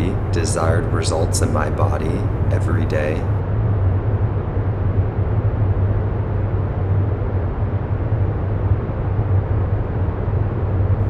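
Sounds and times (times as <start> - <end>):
low rumbling hum: 0.0 - 11.0.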